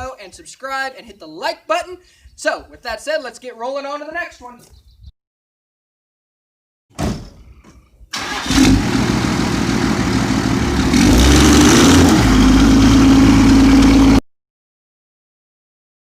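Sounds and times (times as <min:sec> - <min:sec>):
diesel pickup engine revving: 0:08.2 - 0:14.2.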